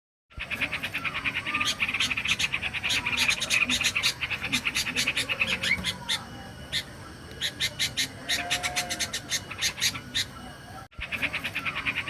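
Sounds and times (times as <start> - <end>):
bird chattering call: 0.4 - 12.0.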